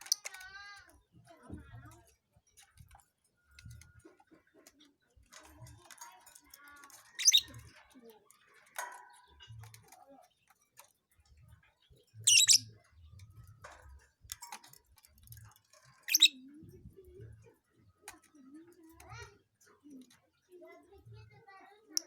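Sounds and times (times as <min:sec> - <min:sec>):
faint small knocks and clicks: 0:00.0 - 0:11.8, 0:12.8 - 0:16.2
lovebird shrill chirps: 0:07.2 - 0:07.5, 0:12.3 - 0:12.6, 0:16.1 - 0:16.4.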